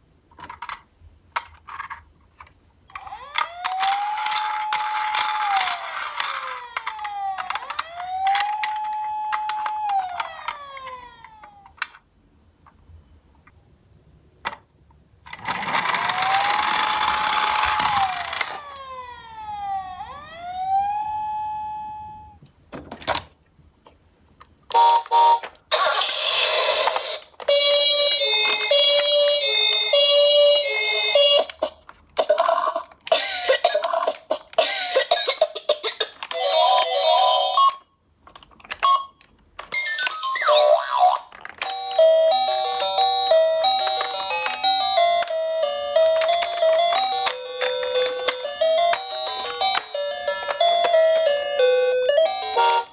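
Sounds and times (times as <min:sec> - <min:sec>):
electronic toy siren: 0:02.9 - 0:11.8, 0:15.4 - 0:22.4, 0:24.7 - 0:31.6, 0:38.8 - 0:52.9
two-tone siren chimes and jingles: 0:03.1 - 0:11.5, 0:16.0 - 0:22.4, 0:41.7 - 0:52.9.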